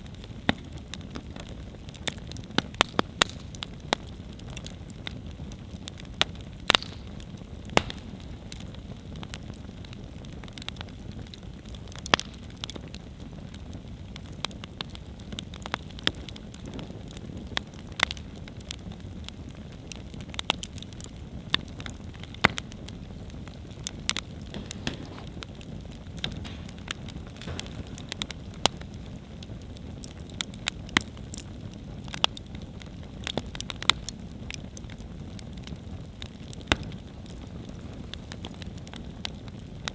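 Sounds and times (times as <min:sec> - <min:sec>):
campfire crackling and popping: 0:00.0 - 0:39.9
fire low rush: 0:24.4 - 0:29.4.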